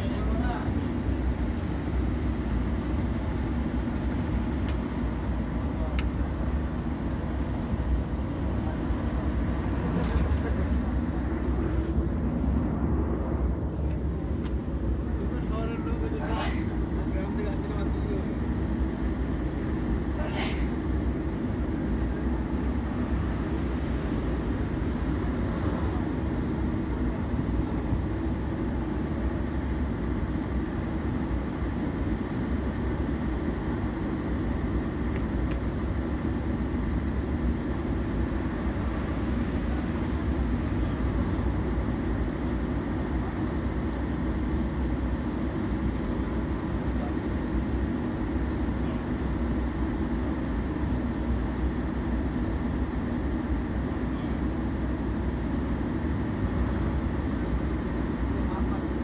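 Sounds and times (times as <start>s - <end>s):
train rumbling over bridge: 0.0s - 58.7s.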